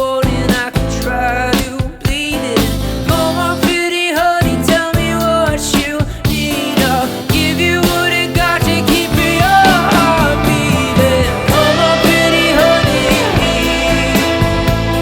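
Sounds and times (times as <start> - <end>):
bass: 0.0 - 15.0
drums: 0.0 - 15.0
live rock band playing: 0.0 - 15.0
sliding lead guitar line: 7.0 - 15.0.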